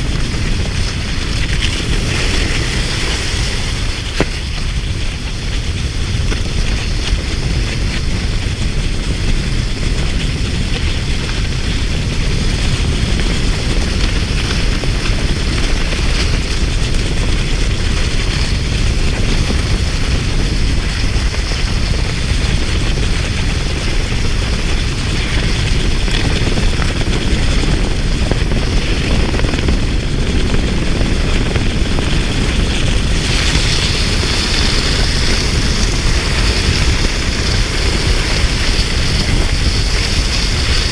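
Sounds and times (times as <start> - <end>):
wind buffeting microphone: 0.0 - 40.9
bright hiss: 33.1 - 40.9.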